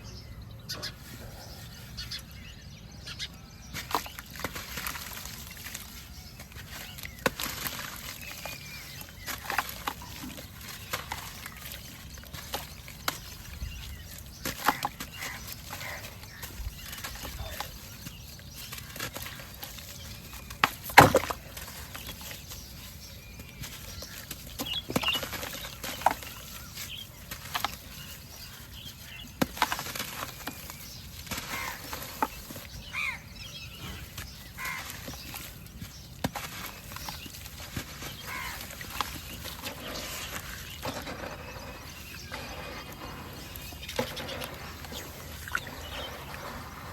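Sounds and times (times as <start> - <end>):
cement shapes crumbling: 3.7 - 32.8.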